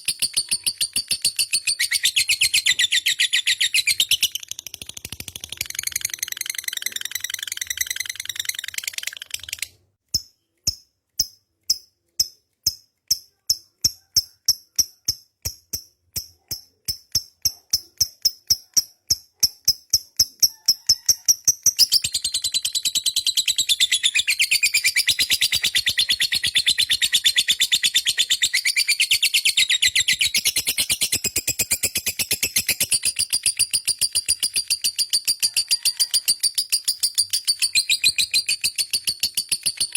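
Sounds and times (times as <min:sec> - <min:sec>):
lovebird chattering trill: 0:00.0 - 0:09.7, 0:17.4 - 0:39.9
sharp bird chips: 0:00.0 - 0:39.9.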